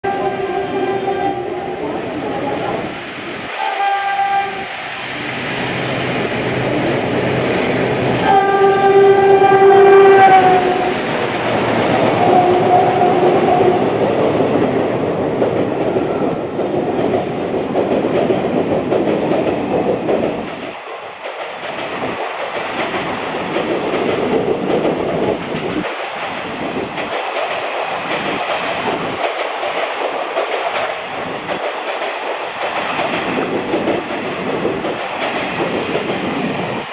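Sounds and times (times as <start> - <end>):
diesel locomotive horn: 0.0 - 1.9, 3.6 - 4.7, 8.2 - 11.1, 12.0 - 13.9
wheels clacking over rail joints: 6.2 - 36.9.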